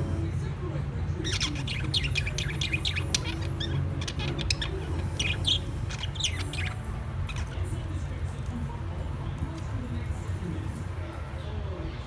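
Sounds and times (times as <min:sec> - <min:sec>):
birds chirping: 0:01.1 - 0:08.1.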